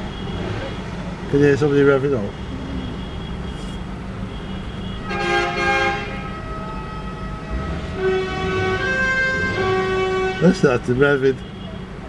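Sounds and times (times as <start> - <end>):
low engine rumble: 0.0 - 12.0
vehicle air horn blasts: 3.0 - 10.8.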